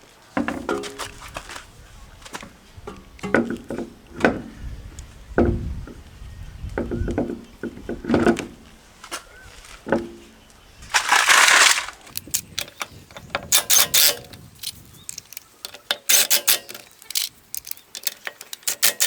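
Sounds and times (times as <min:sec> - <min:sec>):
irregular knocks and clatter: 0:00.4 - 0:01.6, 0:02.3 - 0:04.5, 0:06.7 - 0:08.7, 0:09.7 - 0:10.3.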